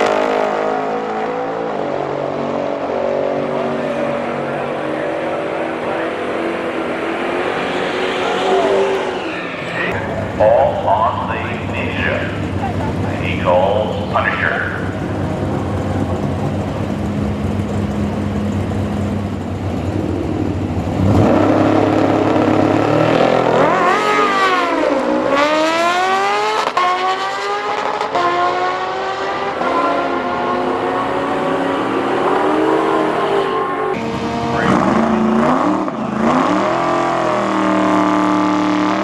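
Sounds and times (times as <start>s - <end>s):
racing engines revving through gears: 0.0s - 39.0s.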